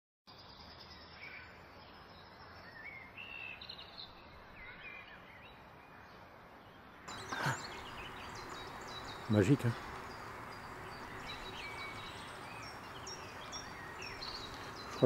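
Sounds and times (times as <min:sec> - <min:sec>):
woodland background noise: 0:00.3 - 0:15.0
songbird whistling: 0:07.1 - 0:15.0.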